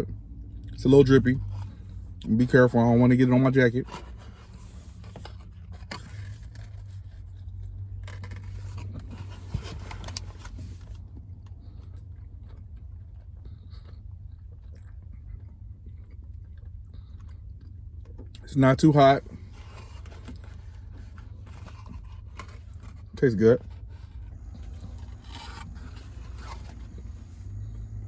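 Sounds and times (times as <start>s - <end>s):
steady low hum: 0.0s - 28.0s
person chewing: 9.9s - 18.4s, 23.7s - 28.0s.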